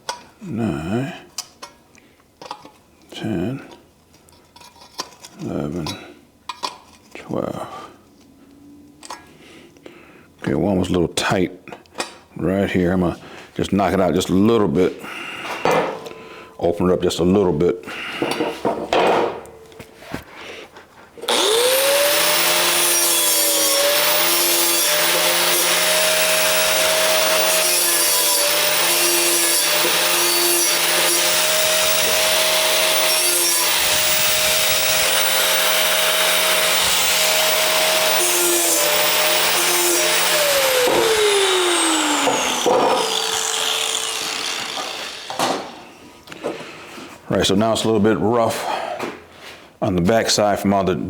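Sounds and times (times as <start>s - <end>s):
power grinder grinding steel: 21.3s - 45.8s.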